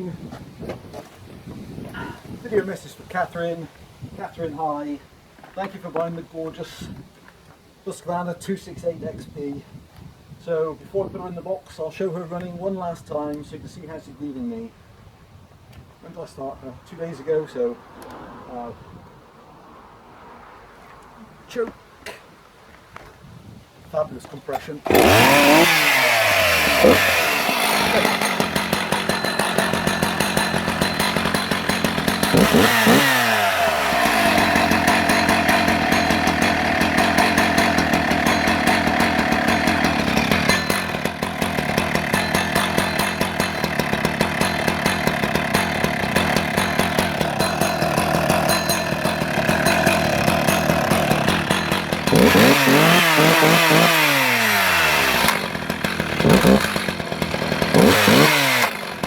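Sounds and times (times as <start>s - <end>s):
chainsaw engine idling and revving: 17.0s - 18.8s, 24.5s - 59.0s.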